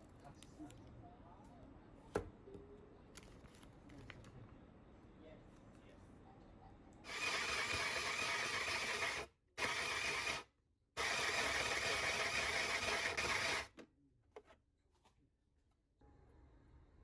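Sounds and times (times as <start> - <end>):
small electric motor running: 7.1 - 10.4, 11.0 - 13.7.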